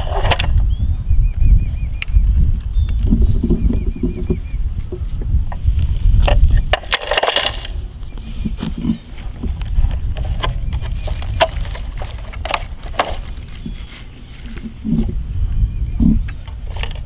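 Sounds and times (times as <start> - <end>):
wind rumbling on microphone: 0.0 - 17.0
toy trucks clicking in mulch: 5.5 - 7.8, 8.5 - 15.1, 16.2 - 17.0.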